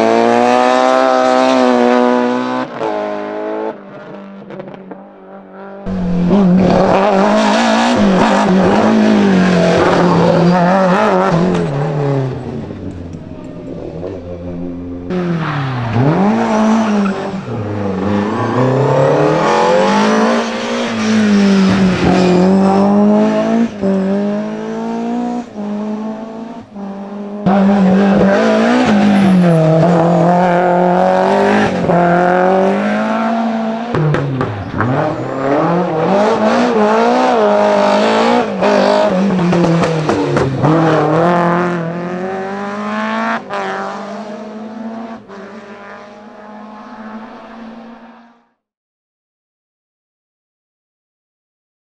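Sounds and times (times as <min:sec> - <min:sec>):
car engine revving high: 0:05.9 - 0:12.7, 0:15.1 - 0:48.3.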